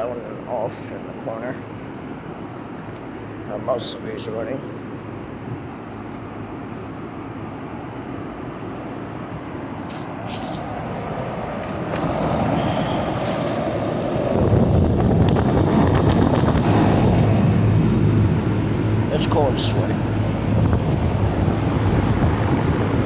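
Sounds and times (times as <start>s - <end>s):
air conditioner fan rush: 0.0s - 23.0s.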